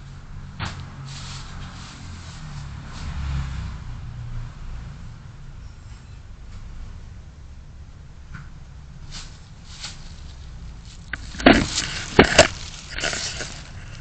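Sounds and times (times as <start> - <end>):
car interior rumble: 5.2 - 14.0.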